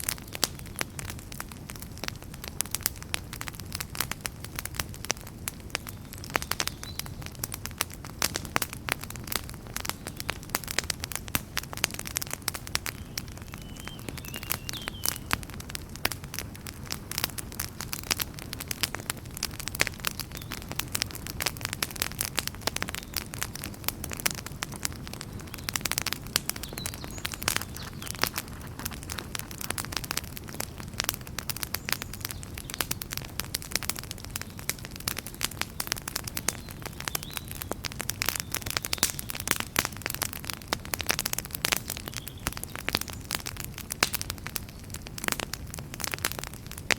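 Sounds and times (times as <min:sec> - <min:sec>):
campfire crackling: 0:00.0 - 0:46.9
low rush of flames: 0:07.2 - 0:41.8.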